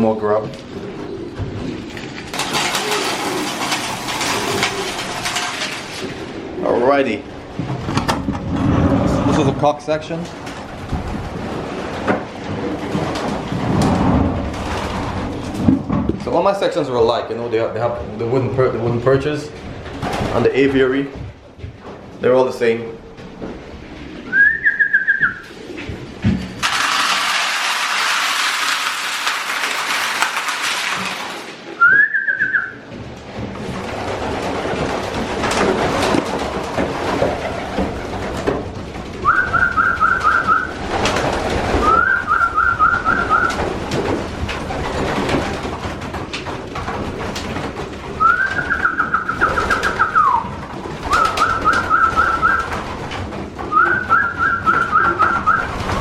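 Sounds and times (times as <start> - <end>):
wings flapping: 0.0 - 16.0, 19.6 - 20.9, 23.6 - 56.0
knocks and shuffling: 0.0 - 56.0
pigeons pulsed high calls: 39.2 - 40.8, 41.6 - 43.7, 48.2 - 52.8, 53.6 - 56.0.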